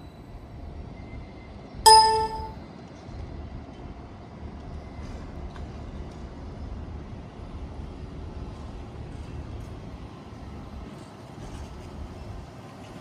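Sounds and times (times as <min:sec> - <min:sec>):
trolleybus signal beep: 0:01.9 - 0:02.5.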